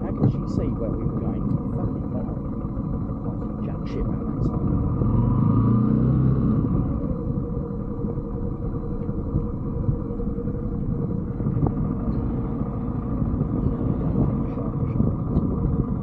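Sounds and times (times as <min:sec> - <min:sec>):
wind noise on microphone: 0:00.0 - 0:16.0
motorbike engine running: 0:06.6 - 0:16.0.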